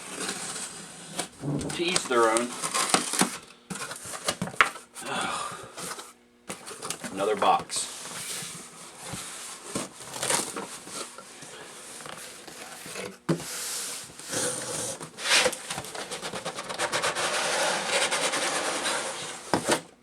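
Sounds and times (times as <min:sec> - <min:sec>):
packing material crinkling: 0:00.0 - 0:04.3
cardboard box rustling and scraping: 0:00.0 - 0:04.8, 0:05.8 - 0:19.9.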